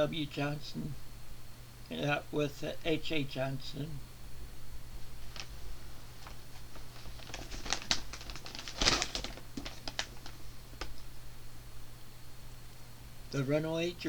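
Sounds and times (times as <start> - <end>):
paperback books being handled: 5.1 - 11.1.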